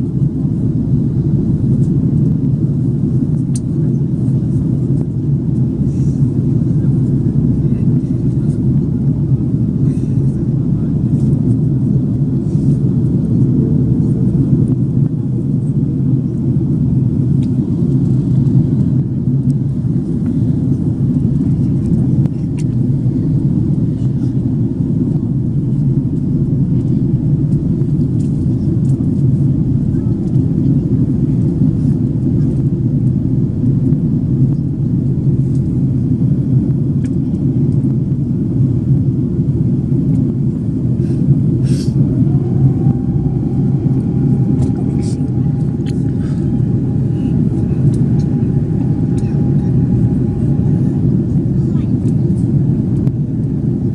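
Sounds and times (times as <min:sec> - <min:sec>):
airplane cabin engine rumble: 0:00.0 - 0:53.9.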